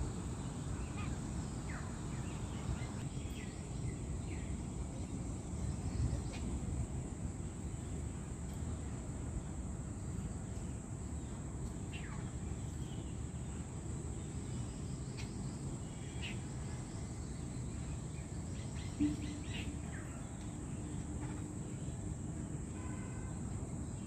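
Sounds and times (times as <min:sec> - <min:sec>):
high insect drone: 0:00.0 - 0:24.0
faint bird chirps: 0:00.2 - 0:06.9, 0:10.0 - 0:22.1.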